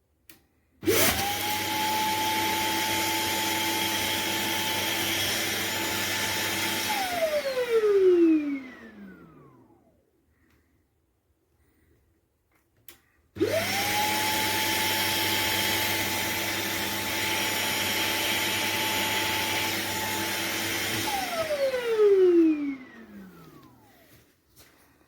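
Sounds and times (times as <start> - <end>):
vacuum motor whine: 0.8 - 10.0, 13.4 - 24.2.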